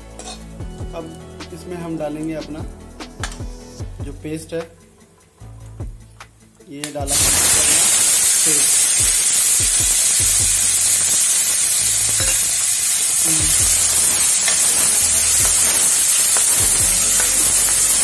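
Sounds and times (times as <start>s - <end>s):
paste sizzling in hot oil: 7.1s - 18.0s.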